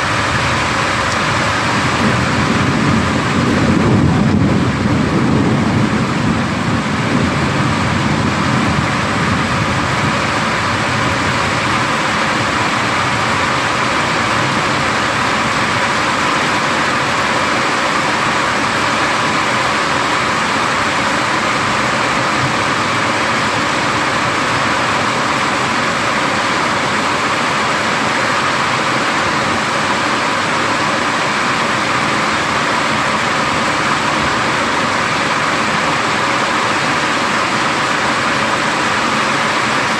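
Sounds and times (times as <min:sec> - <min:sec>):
low thunder rumble: 0:00.0 - 0:17.4
heavy rain pouring: 0:00.0 - 0:39.9.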